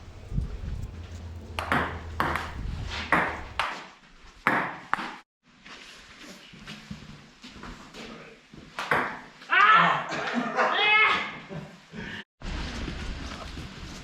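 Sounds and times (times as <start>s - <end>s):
ping pong ball hits: 1.5s - 3.7s, 8.8s - 9.2s.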